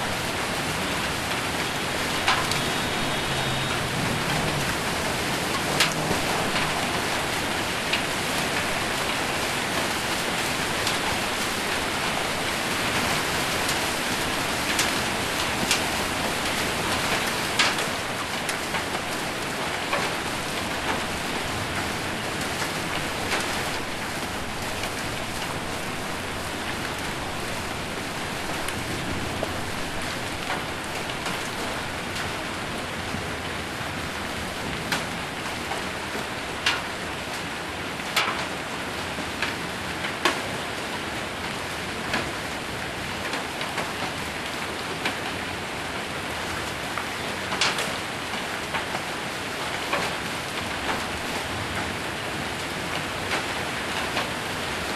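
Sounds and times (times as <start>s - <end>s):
hail clicking on metal roof: 0.0s - 54.9s
heavy rain: 0.0s - 54.9s.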